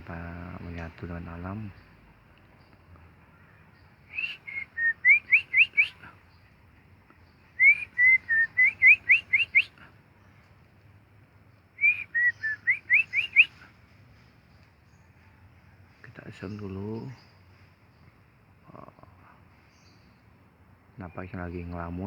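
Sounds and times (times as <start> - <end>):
whistled song phrases: 4.1 - 6.1, 7.6 - 9.7, 11.8 - 13.6.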